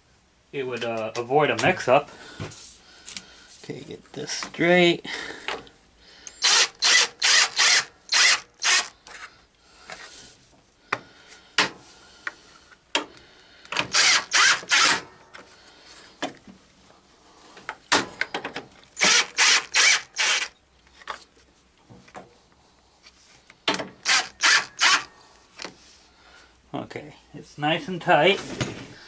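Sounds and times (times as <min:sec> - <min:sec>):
ratchet wrench rasping: 0:06.2 - 0:08.9, 0:13.9 - 0:15.0, 0:19.0 - 0:20.5, 0:24.0 - 0:25.1.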